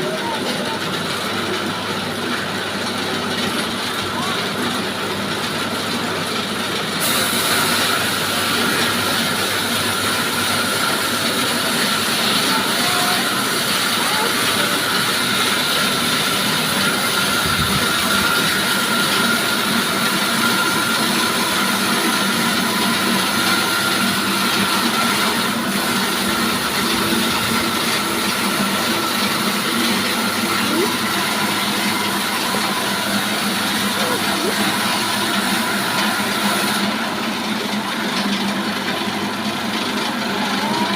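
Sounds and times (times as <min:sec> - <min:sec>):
sawmill machine noise with whine: 0:00.0 - 0:40.9
hissing saw cutting timber: 0:06.9 - 0:38.0.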